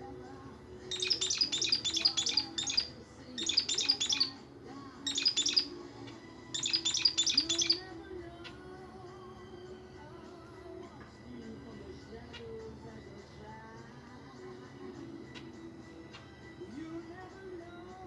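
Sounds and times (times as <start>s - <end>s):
budgerigar chirping: 0.9s - 4.4s, 5.0s - 7.9s.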